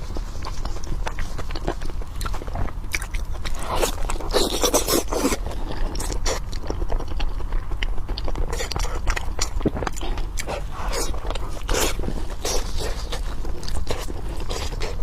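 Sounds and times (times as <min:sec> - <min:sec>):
wet chewing with mouth clicks: 0:00.0 - 0:15.0
rough scraping crunching: 0:08.5 - 0:15.0.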